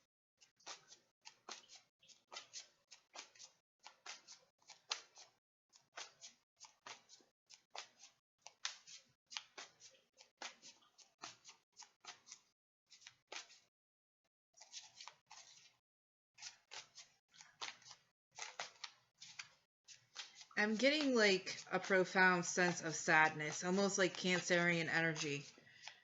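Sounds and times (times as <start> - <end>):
cards being shuffled: 0.6 - 13.6, 14.6 - 15.8, 16.4 - 21.8.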